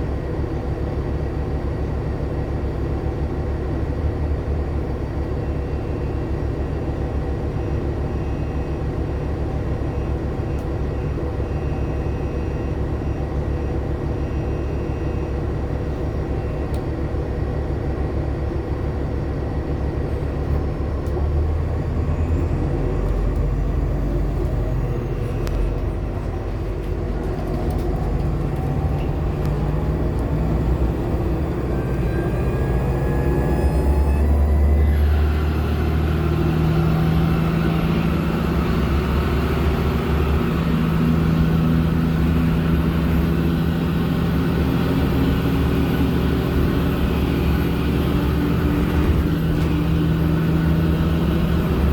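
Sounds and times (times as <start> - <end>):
bus interior engine rumble: 0.0 - 51.9
rising whine: 21.9 - 37.9.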